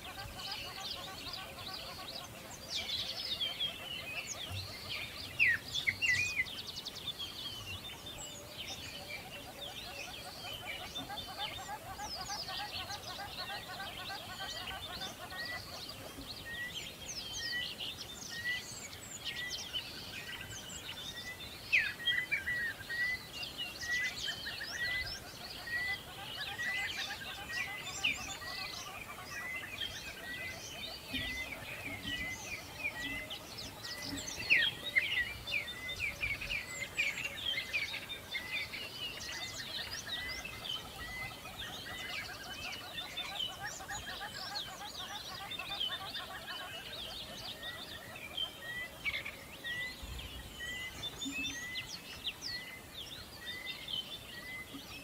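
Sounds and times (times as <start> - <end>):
birds chirping and twittering: 0.0 - 55.0
sharp bird calls: 0.0 - 55.0.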